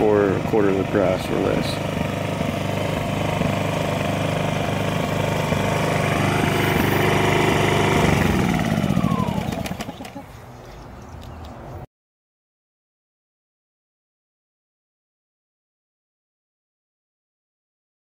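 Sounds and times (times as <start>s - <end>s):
generator running: 0.0s - 10.4s.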